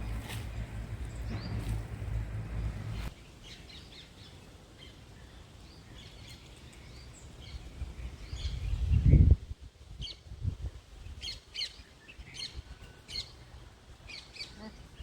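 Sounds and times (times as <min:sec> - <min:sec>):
low rumble: 0:00.0 - 0:03.2
small birds chirping: 0:00.0 - 0:09.4, 0:11.0 - 0:15.0.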